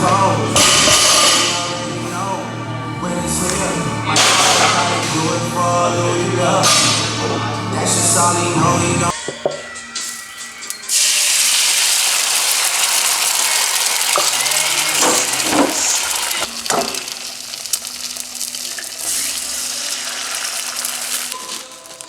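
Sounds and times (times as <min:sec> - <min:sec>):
food sizzling in a frying pan: 0:10.0 - 0:22.0
scraping in a pan: 0:12.6 - 0:22.0.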